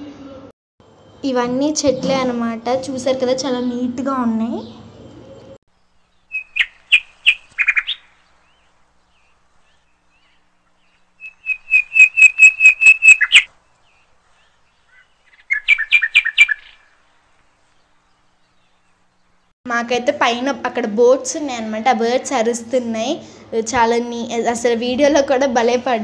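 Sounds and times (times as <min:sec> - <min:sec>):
birds calling sharp high notes: 0:06.2 - 0:08.7, 0:09.7 - 0:17.0.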